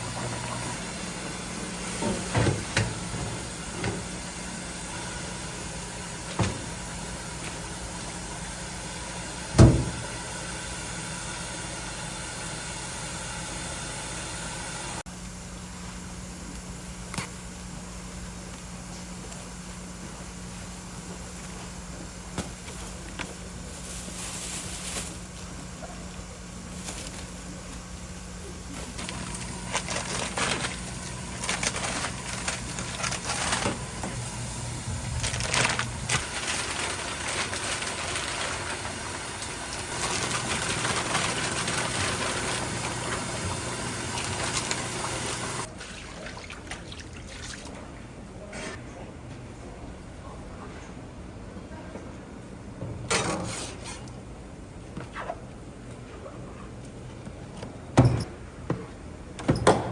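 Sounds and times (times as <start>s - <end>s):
machine hum: 0.0s - 45.8s.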